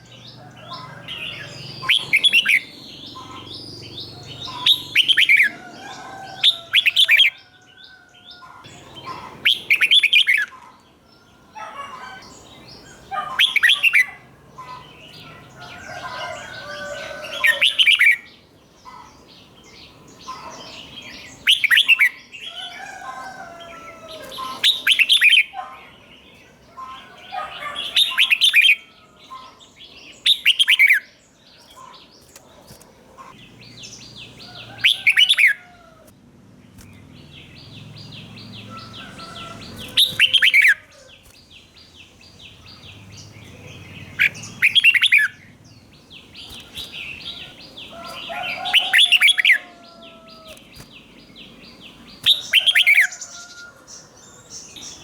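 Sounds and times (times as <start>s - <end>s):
bird chattering calls: 0.6s - 5.5s, 11.6s - 18.2s, 38.0s - 51.0s, 51.7s - 53.5s.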